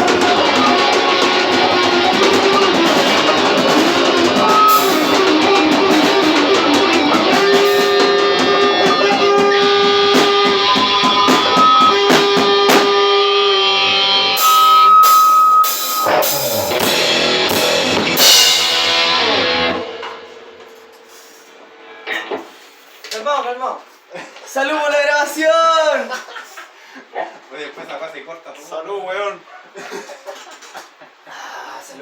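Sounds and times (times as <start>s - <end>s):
electric guitar playing: 0.0s - 22.1s
drum kit: 0.0s - 23.0s
cymbal crashes: 0.1s - 8.7s, 14.4s - 21.7s.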